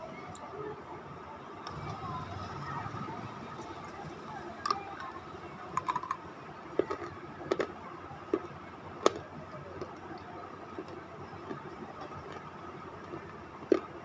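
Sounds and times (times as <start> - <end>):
crunchy chewing: 6.8 - 14.0.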